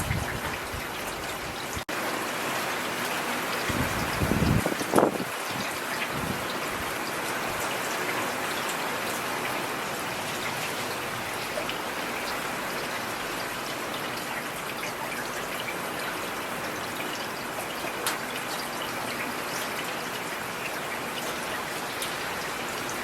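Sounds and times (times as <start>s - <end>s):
rain hissing on street: 0.0s - 23.0s
raindrops ticking: 10.2s - 23.0s.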